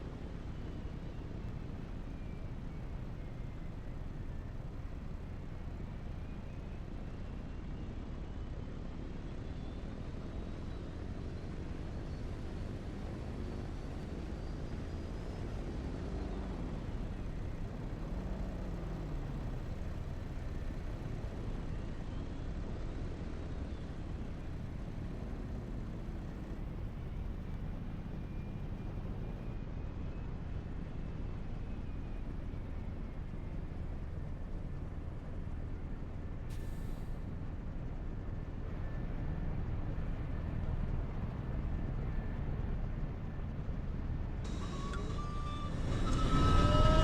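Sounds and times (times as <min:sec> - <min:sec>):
vehicle rumble: 0:00.0 - 0:47.0
faint whistling tones: 0:44.5 - 0:47.0.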